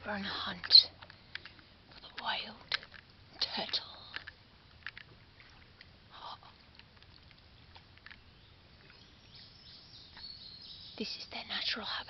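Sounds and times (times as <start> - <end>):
soft water splash: 0.0 - 9.3
faint steady hiss: 0.0 - 12.0
small clicks and taps: 0.6 - 5.1.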